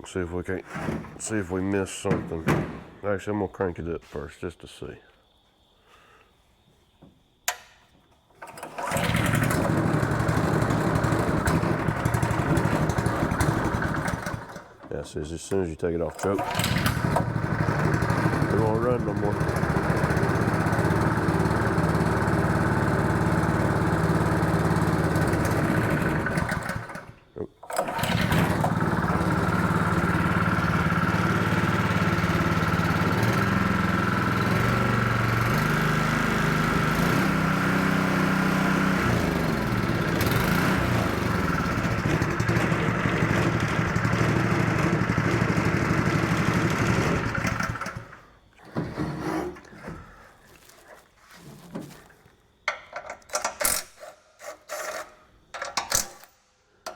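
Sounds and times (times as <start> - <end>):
small engine running: 8.4 - 14.9, 16.2 - 50.7.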